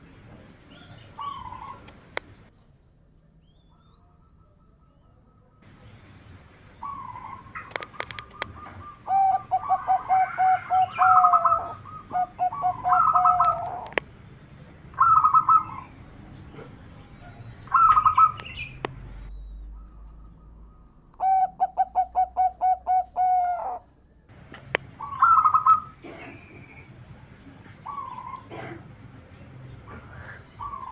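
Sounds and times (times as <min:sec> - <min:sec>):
dove cooing: 0:00.7 - 0:02.1, 0:06.8 - 0:14.0, 0:15.0 - 0:18.7, 0:19.8 - 0:23.9, 0:25.0 - 0:26.8, 0:27.8 - 0:29.0, 0:29.9 - 0:30.9.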